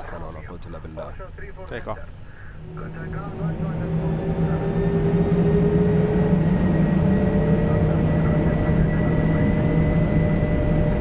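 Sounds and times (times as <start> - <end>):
jet engines spooling up: 2.4 - 11.0.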